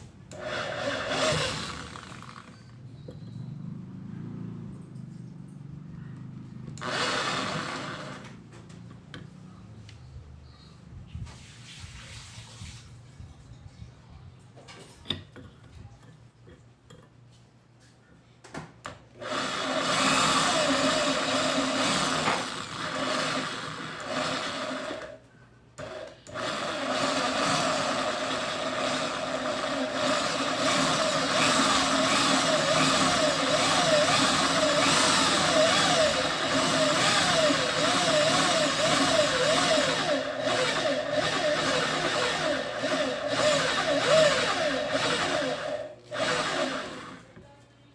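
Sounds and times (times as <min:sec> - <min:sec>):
drill press motor running: 0:00.3 - 0:02.7, 0:06.7 - 0:08.4, 0:19.2 - 0:25.2, 0:25.8 - 0:47.2.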